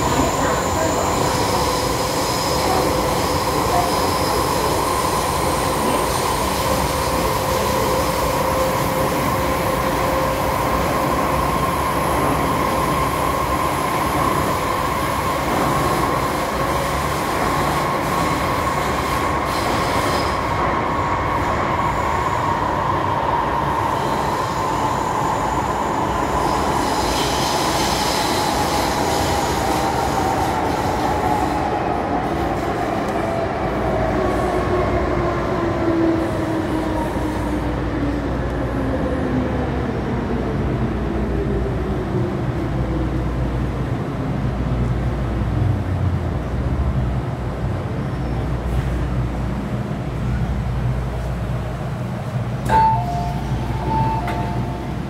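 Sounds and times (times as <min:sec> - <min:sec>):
train rumbling in tunnel: 0:00.0 - 0:55.0.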